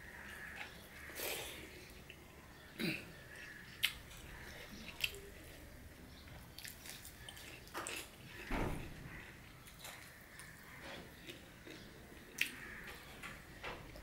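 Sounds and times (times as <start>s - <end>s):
person chewing food: 3.3s - 5.6s, 6.2s - 8.5s, 9.3s - 13.1s.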